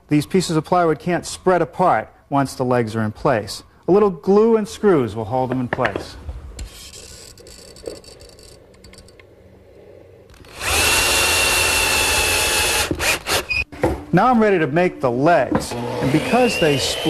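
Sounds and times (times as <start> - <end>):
power drill driving screws: 10.3 - 13.6, 15.7 - 17.0.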